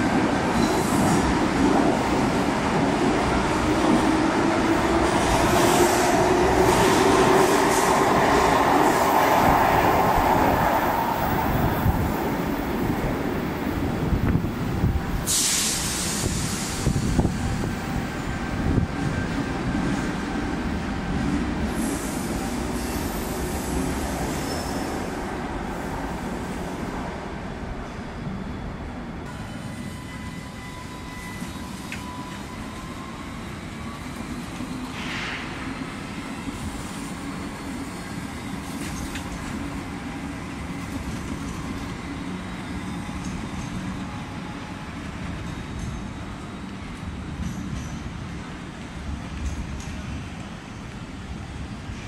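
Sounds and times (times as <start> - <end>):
electric train running past: 0.0 - 52.0
tram rolling on street track: 0.0 - 52.0
tram wheel squeal: 0.5 - 1.5, 13.8 - 26.8, 27.8 - 50.3.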